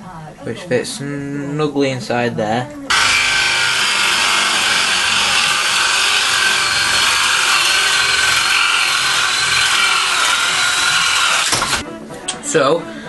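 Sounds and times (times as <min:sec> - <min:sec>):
power tool cutting wood: 0:02.9 - 0:11.8.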